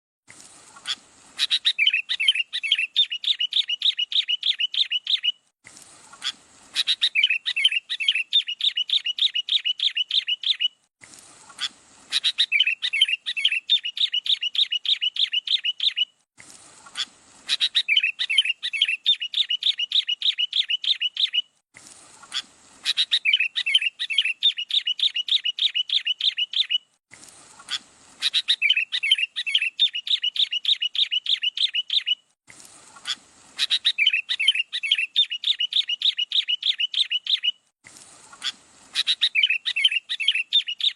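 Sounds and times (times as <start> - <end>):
songbird rapid chirping: 0.8 - 10.8, 11.4 - 26.9, 27.5 - 40.9.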